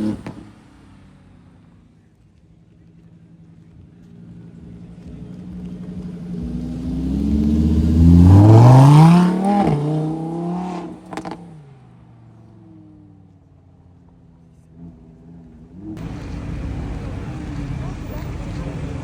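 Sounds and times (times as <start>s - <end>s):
car engine accelerating: 0.0s - 19.0s
exhaust cracks: 13.9s - 19.0s.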